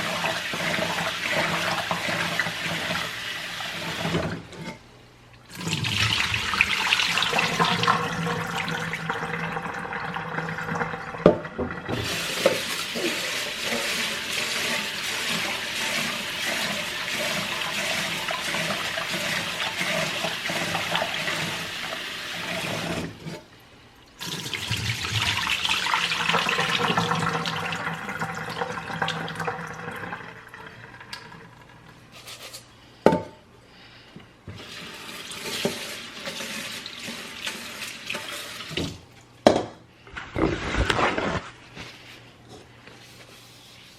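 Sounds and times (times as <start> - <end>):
water running from a tap: 0.0 - 4.4, 5.5 - 23.1, 24.2 - 31.8, 34.5 - 39.0.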